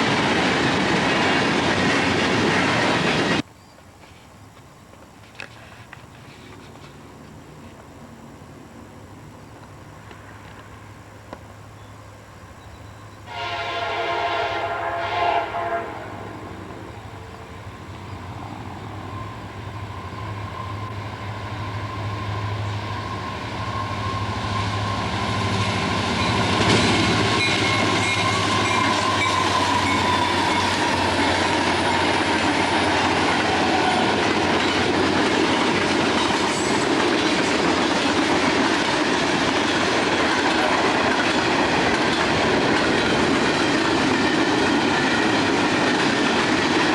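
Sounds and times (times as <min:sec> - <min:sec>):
train engine rumble: 0:00.0 - 0:46.9
train wheels on rail: 0:00.0 - 0:46.9
diesel locomotive horn: 0:13.2 - 0:17.4, 0:19.2 - 0:34.8.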